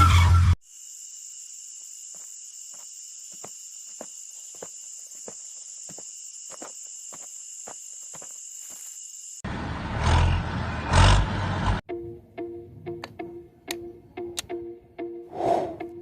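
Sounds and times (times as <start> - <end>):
insect chirring: 0.6 - 9.4
plucked-string music: 11.9 - 16.0.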